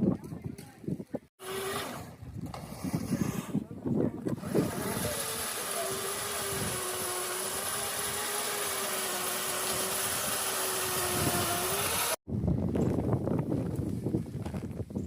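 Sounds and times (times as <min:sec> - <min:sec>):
small engine running with whine: 0:01.4 - 0:02.0, 0:04.4 - 0:12.2.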